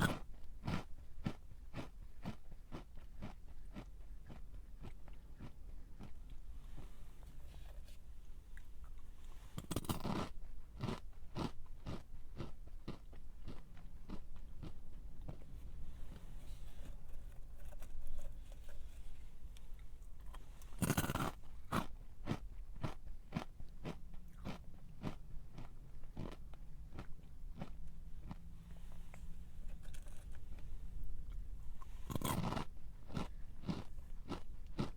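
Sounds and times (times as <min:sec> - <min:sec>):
crunching chews: 0:00.0 - 0:06.9, 0:09.6 - 0:15.5, 0:19.7 - 0:34.9
crunchy snack bite: 0:09.6 - 0:13.0, 0:20.8 - 0:26.4, 0:32.0 - 0:34.9.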